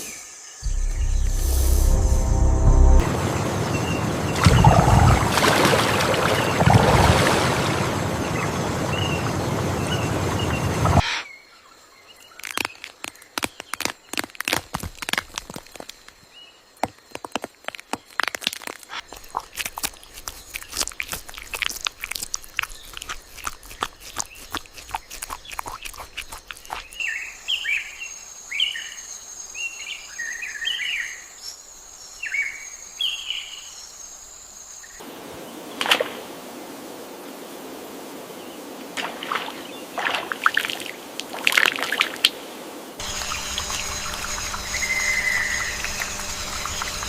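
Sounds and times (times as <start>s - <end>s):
high-pitched whine: 0.6s - 5.6s, 43.0s - 47.0s.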